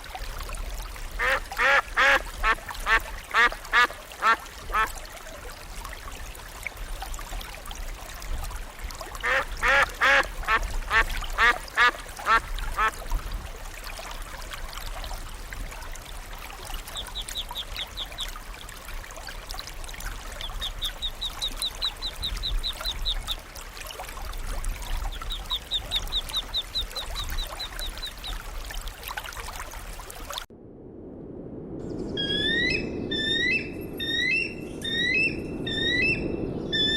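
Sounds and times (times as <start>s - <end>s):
duck quacking: 1.2s - 4.9s, 9.2s - 12.9s
bird chirping trills: 31.8s - 36.9s.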